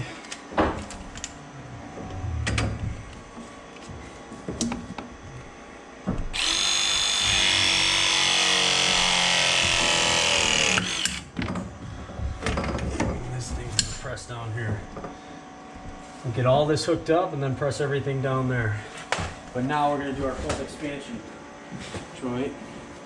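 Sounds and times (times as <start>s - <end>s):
pipe press tool motor running: 6.2s - 11.4s.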